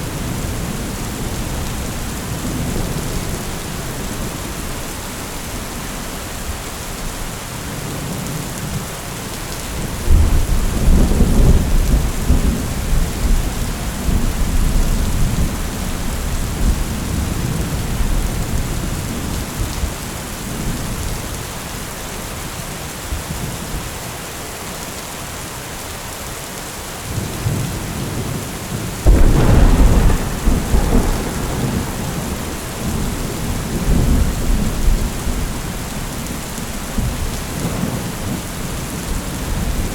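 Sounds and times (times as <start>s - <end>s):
steady rain: 0.0s - 39.9s
thunder claps rumbling: 29.0s - 39.9s.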